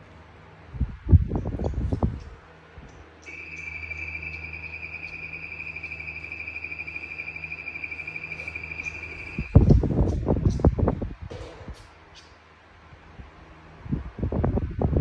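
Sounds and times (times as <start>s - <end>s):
low steady hum: 0.0s - 15.0s
electronic cricket trill: 3.2s - 10.2s.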